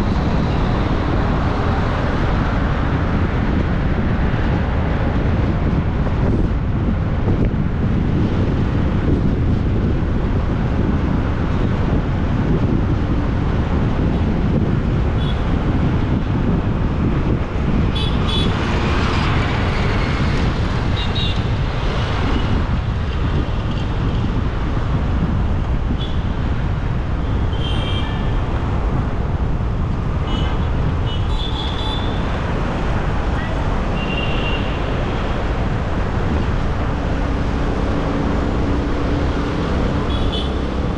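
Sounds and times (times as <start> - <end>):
wind and road noise: 0.0 - 40.9
vehicle horn toots: 27.5 - 28.3, 40.1 - 40.6.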